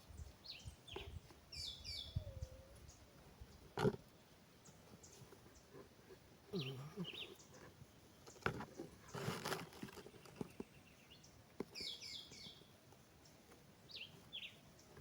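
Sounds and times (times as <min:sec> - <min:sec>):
birds chirping: 0:00.0 - 0:03.7, 0:06.5 - 0:15.0
animal call: 0:06.5 - 0:07.4.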